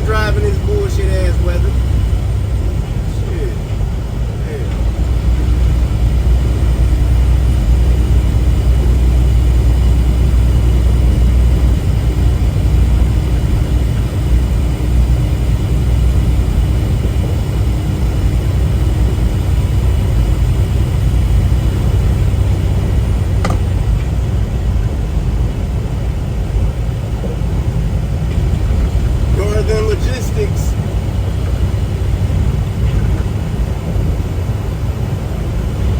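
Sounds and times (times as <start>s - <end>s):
road noise: 0.0s - 35.9s
truck engine drone: 0.0s - 35.9s.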